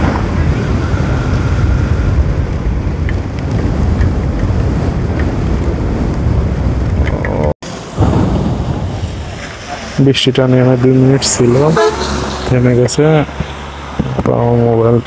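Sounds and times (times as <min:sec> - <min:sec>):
wind buffeting the microphone: 0:00.0 - 0:10.0
faint raindrop ticks: 0:02.5 - 0:06.2.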